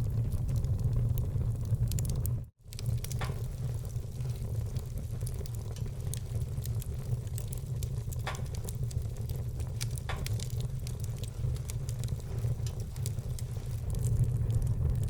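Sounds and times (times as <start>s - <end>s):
fire crackling: 0.0s - 15.0s
loud pops from burning logs: 0.0s - 15.0s
low rumble of fire: 0.0s - 15.0s.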